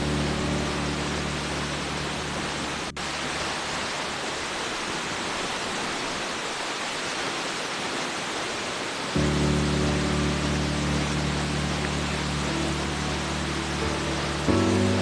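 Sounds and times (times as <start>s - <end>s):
low sustained music notes: 0.0s - 4.2s, 9.2s - 15.0s
waterfall rushing: 0.0s - 15.0s.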